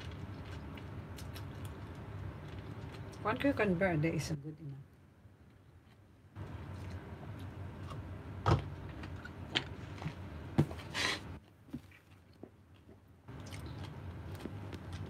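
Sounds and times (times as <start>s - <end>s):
chewing cucumber crunches: 0.0s - 3.2s, 11.8s - 15.0s.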